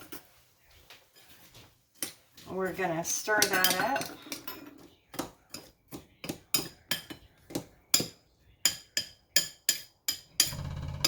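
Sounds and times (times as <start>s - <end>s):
spoon clinking against bowl: 3.4s - 10.8s.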